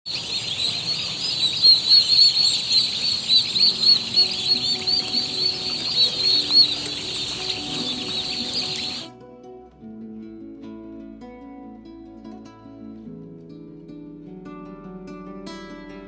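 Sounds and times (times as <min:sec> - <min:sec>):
turkey poults peeping: 0:00.1 - 0:09.1
faint musical notes: 0:00.1 - 0:09.7.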